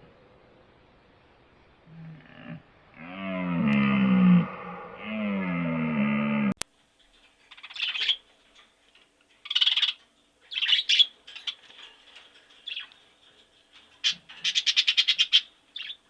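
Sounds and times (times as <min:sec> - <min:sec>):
bird harsh chirps: 0:07.5 - 0:08.2, 0:09.4 - 0:11.7, 0:14.0 - 0:16.0.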